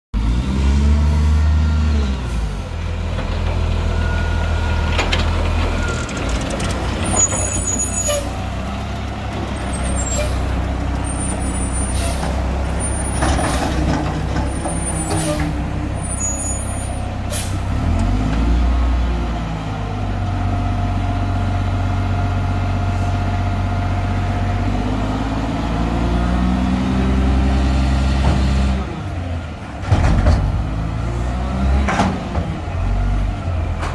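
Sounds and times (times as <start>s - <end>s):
truck diesel engine revving: 0.2s - 33.9s
high-pitched squeaks: 5.8s - 8.4s
air brakes hissing: 11.2s - 13.8s, 14.8s - 17.8s.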